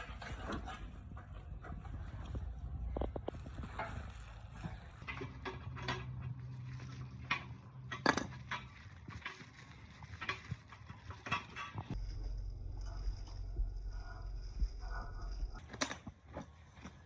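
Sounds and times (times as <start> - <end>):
low steady hum: 0.0 - 17.0
metal objects clinking: 3.5 - 12.0.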